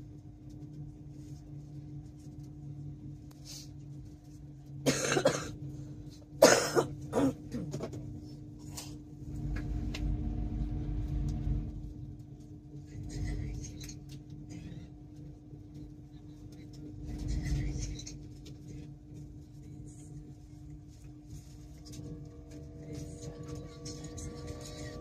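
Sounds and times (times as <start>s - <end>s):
train carriage hum and rumble: 0.0s - 25.0s
person coughing: 4.8s - 5.6s, 6.4s - 7.8s
steady tone: 9.2s - 12.3s, 21.5s - 25.0s.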